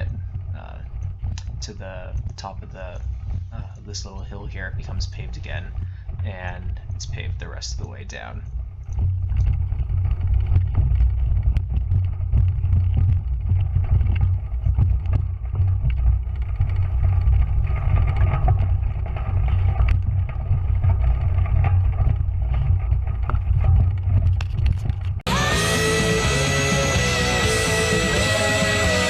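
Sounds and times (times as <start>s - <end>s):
small clicks and rattles: 4.9s - 25.3s.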